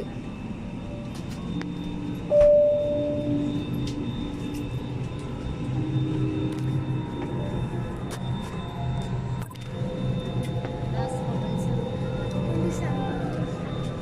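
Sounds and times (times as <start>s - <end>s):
cabin background hum: 0.0s - 14.0s
clear chime: 2.3s - 3.7s.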